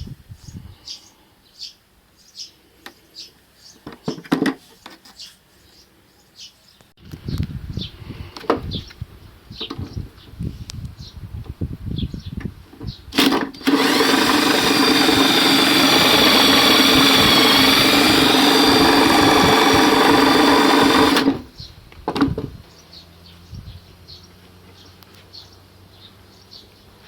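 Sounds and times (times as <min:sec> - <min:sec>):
electric motor whining: 0:13.2 - 0:21.6.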